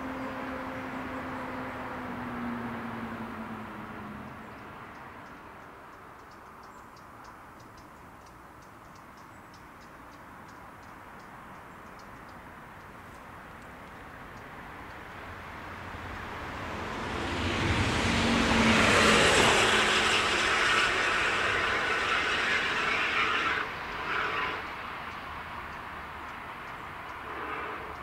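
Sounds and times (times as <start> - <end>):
train passing: 14.6 - 28.0.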